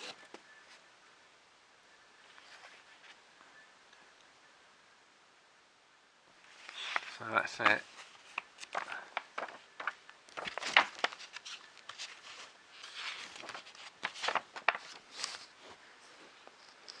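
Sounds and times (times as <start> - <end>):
packaging rustling: 6.5 - 15.6.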